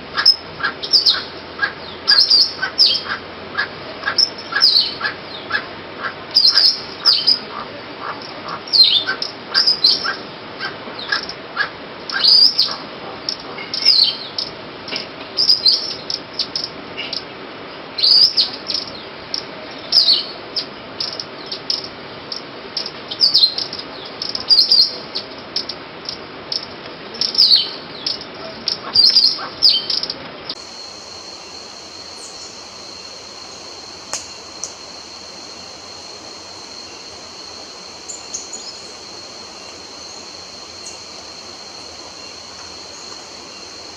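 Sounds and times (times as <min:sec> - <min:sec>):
birds calling: 0:00.0 - 0:17.4, 0:22.8 - 0:43.9.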